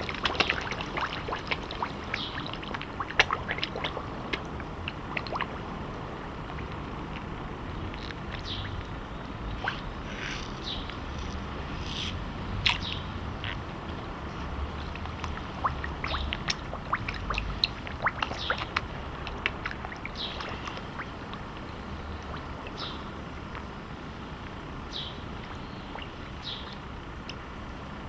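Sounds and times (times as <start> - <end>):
fish slurping at water surface: 0.0 - 5.8, 13.5 - 23.7.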